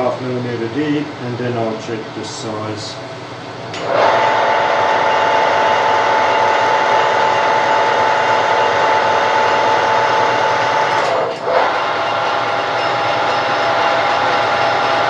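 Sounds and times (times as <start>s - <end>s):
lathe whining: 3.6s - 15.0s.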